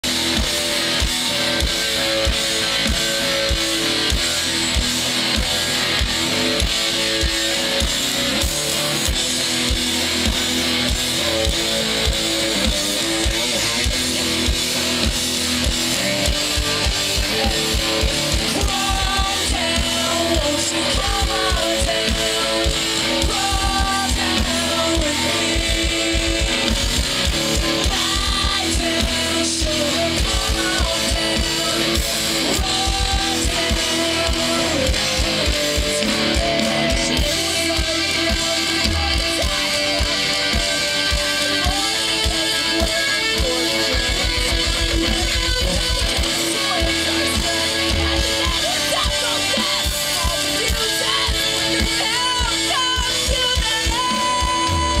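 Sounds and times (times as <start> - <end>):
drum kit with kick drum: 0.0 - 55.0
strummed electric guitars: 0.0 - 55.0.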